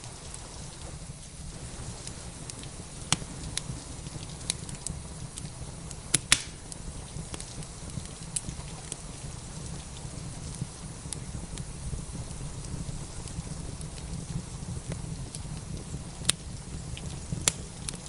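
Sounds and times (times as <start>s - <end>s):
rain hissing: 0.0s - 18.0s
wood fire crackling: 0.0s - 18.0s
loud snaps: 6.1s - 6.8s.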